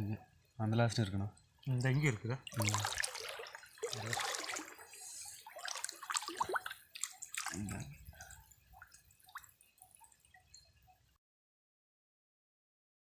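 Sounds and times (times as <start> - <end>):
water dripping from net: 0.9 - 11.1.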